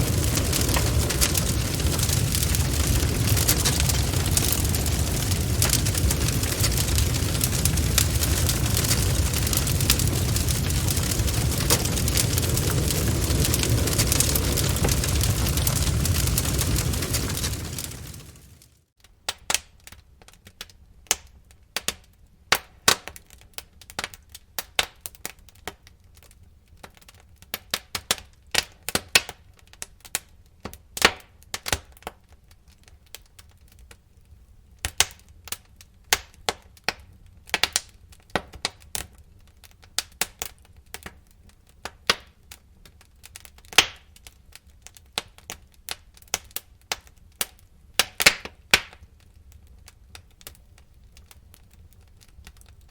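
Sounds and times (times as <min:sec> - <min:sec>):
faint low rumble: 0:00.0 - 0:18.6
bonfire crackling and popping: 0:00.0 - 0:52.9.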